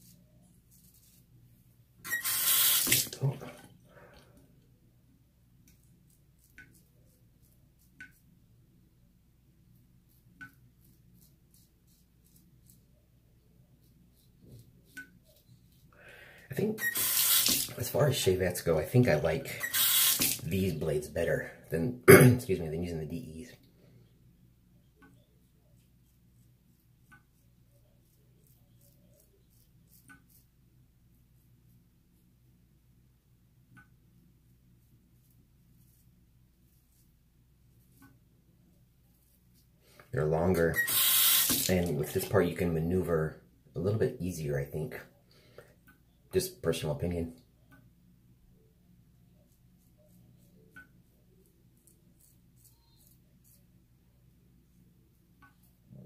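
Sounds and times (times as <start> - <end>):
razor scraping stubble: 2.1 - 3.1, 16.8 - 18.0, 19.6 - 20.8, 28.0 - 30.5, 40.3 - 42.3, 51.5 - 53.7.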